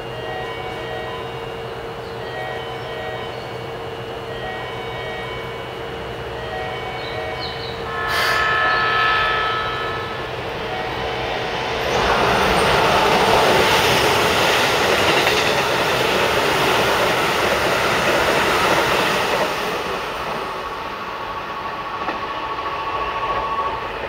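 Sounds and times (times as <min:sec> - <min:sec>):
electric train passing: 0:00.0 - 0:24.0
thin steady whine: 0:07.8 - 0:13.4.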